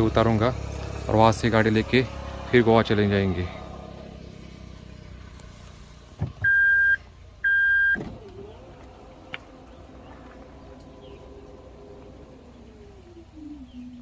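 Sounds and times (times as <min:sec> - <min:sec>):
dull thump: 0:06.2 - 0:06.6
short electronic beeps: 0:06.4 - 0:08.0.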